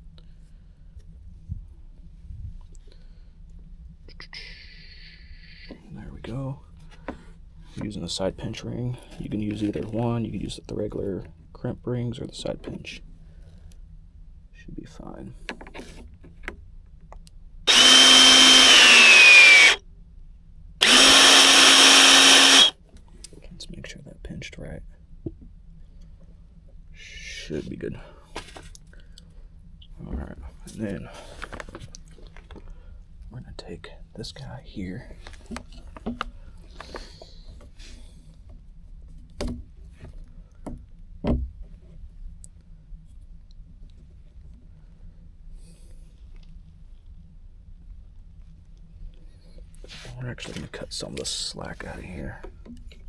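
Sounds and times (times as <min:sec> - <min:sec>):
steady low hum: 0:00.0 - 0:53.0
crimping tool motor whine: 0:17.7 - 0:19.8, 0:20.8 - 0:22.8.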